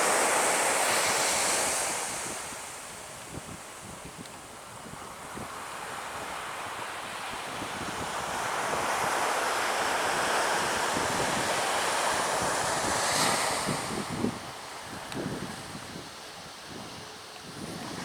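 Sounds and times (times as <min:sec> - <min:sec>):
beach surf: 0:00.0 - 0:18.0
wind buffeting microphone: 0:10.1 - 0:18.0.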